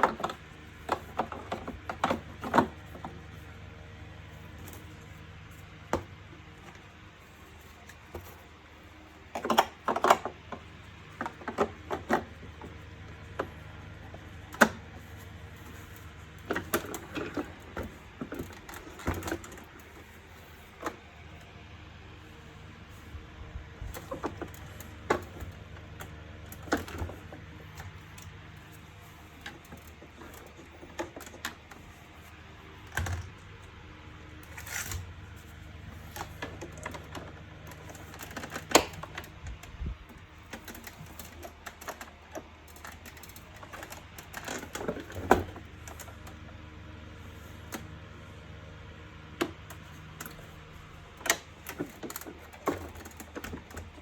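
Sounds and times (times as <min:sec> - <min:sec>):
plastic parts clicking and knocking: 0:00.0 - 0:03.5, 0:09.2 - 0:21.1, 0:23.9 - 0:33.7, 0:34.4 - 0:46.4, 0:49.3 - 0:54.0.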